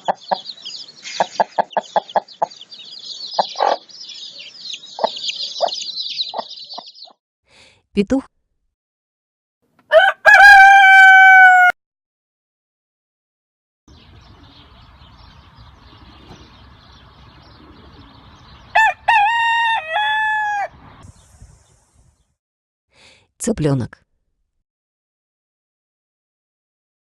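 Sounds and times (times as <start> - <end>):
rooster crowing: 9.9 - 11.8, 18.7 - 20.8.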